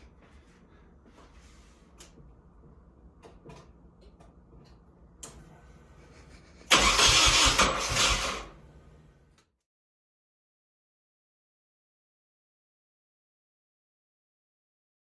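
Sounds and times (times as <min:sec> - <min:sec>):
engine cranking on starter: 0:06.6 - 0:09.0.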